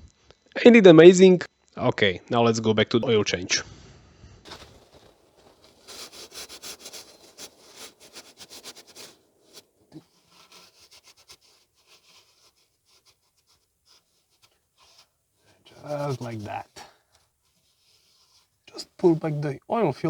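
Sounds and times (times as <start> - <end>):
hands rubbing and scraping parts: 4.5 - 20.0.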